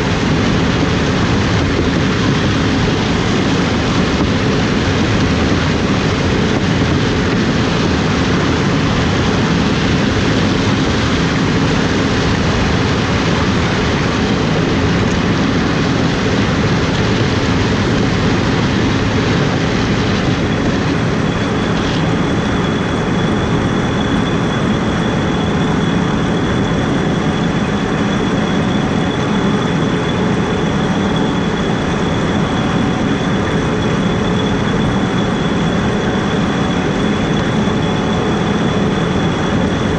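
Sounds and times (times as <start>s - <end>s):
harvest machinery running: 0.0s - 39.9s
thin high whine: 0.0s - 39.9s.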